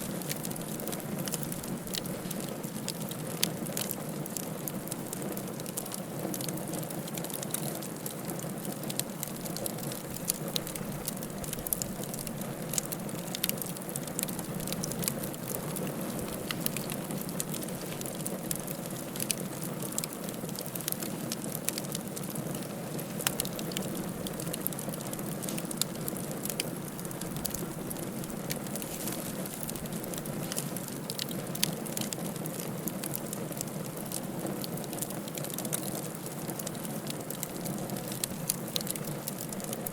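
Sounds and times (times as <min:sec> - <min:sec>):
fire crackling and popping: 0:00.0 - 0:39.9
hiss of flames: 0:22.4 - 0:32.0.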